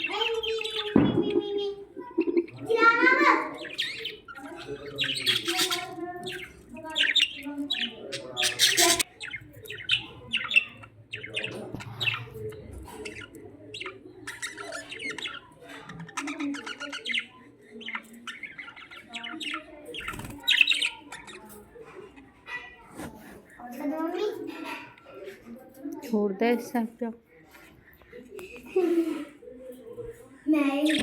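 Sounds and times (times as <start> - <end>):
budgies chirping and chattering: 0.0 - 31.0.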